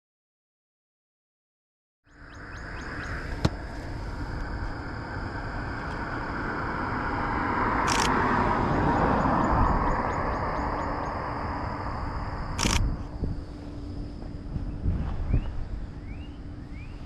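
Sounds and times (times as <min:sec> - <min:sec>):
road and wind noise: 0:02.1 - 0:17.0
sharp click: 0:12.6 - 0:12.9.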